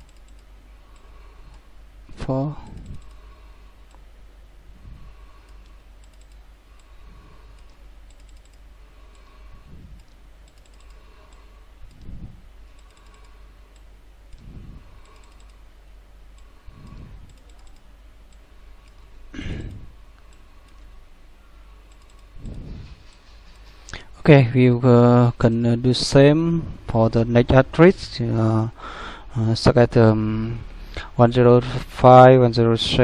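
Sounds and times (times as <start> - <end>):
keyboard typing: 0.0 - 1.1, 2.7 - 3.2, 5.4 - 9.3, 9.9 - 12.1, 12.7 - 15.6, 16.4 - 19.1, 21.9 - 23.6
mouse clicks: 5.4 - 6.9.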